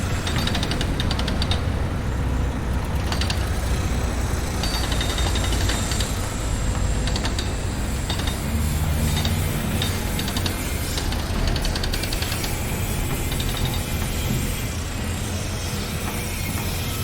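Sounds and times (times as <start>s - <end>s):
heavy machinery engine rumble: 0.0s - 17.0s.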